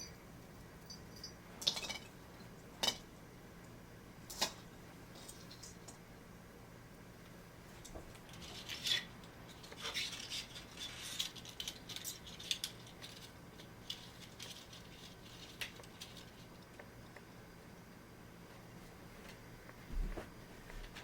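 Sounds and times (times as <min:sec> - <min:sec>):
small objects clicking: 0:08.2 - 0:17.2.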